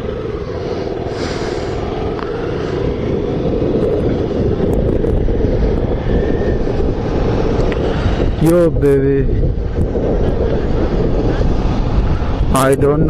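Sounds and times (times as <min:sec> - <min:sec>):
motorcycle engine drone: 0:00.0 - 0:13.0
wind rush on microphone: 0:00.0 - 0:13.0.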